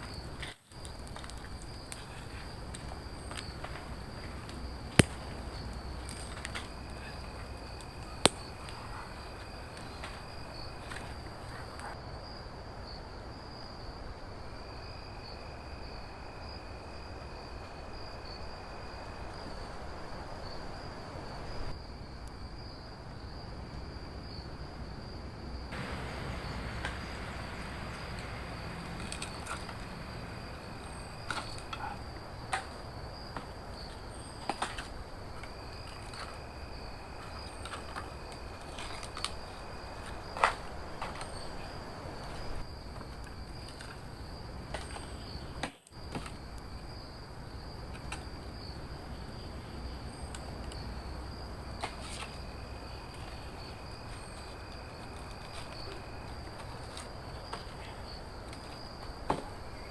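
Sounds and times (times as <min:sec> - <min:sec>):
insects trilling: 0:00.0 - 0:59.9
low outdoor background: 0:00.0 - 0:59.9.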